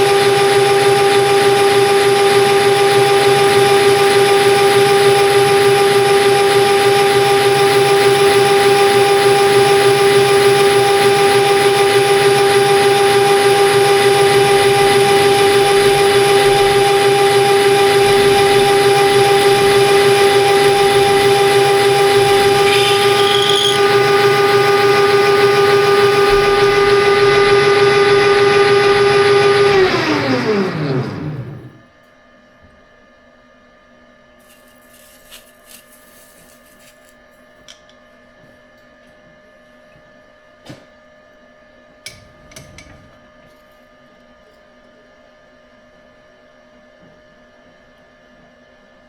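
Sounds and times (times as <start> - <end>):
metal lathe whining: 7.2 - 31.8
high squeal: 19.4 - 27.1.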